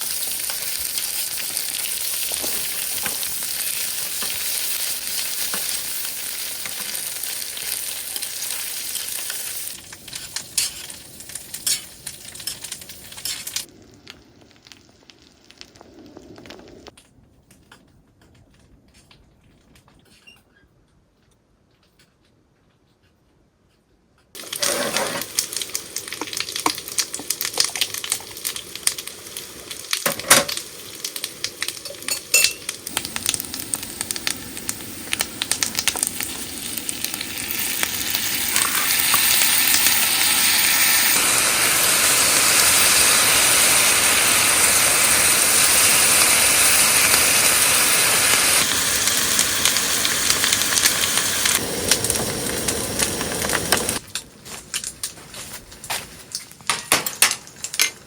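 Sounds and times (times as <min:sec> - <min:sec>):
food sizzling in a pan: 0:00.0 - 0:16.9, 0:24.4 - 0:54.0
utensils clinking in a pan: 0:24.4 - 0:27.8, 0:30.0 - 0:30.6, 0:31.7 - 0:32.8, 0:56.3 - 0:58.0.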